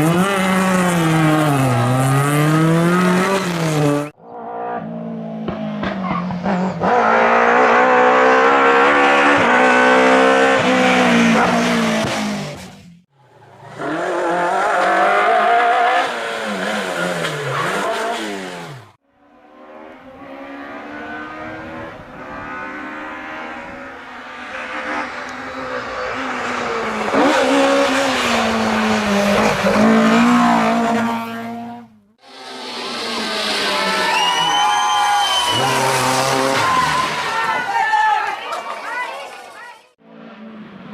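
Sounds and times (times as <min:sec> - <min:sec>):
rally car engines revving: 0:00.0 - 0:37.4.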